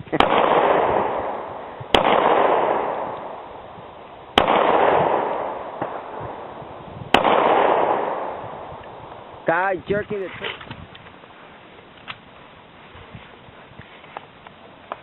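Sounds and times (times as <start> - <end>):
pistol shots echoing: 0.1 - 3.7, 4.3 - 8.8.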